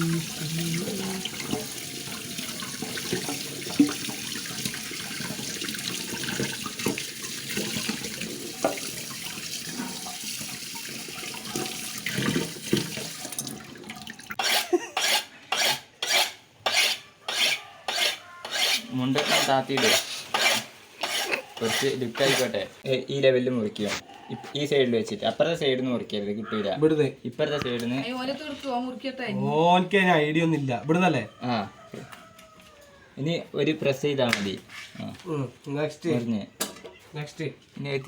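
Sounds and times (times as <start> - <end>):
tap water running into sink: 0.0 - 14.4.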